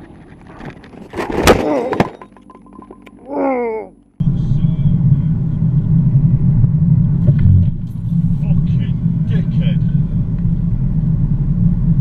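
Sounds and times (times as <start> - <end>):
car engine and road noise: 0.0 - 1.5, 3.9 - 12.0.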